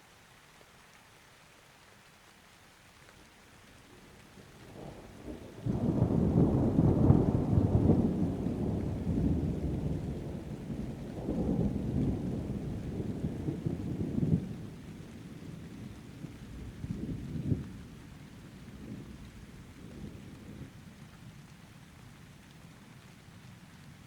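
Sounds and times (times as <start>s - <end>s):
steady rain: 0.0s - 24.0s
thunder rumbling: 4.6s - 20.8s.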